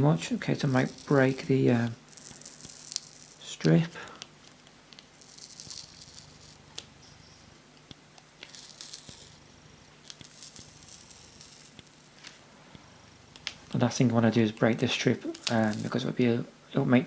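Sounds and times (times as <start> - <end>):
adhesive strip peeling crackle: 0.5 - 6.9, 14.8 - 16.0.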